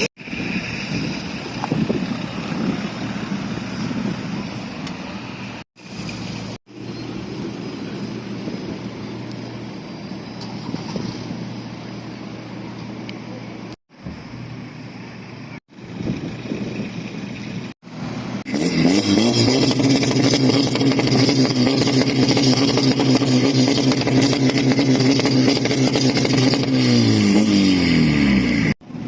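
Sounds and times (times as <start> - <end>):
car engine revving: 17.4 - 28.8.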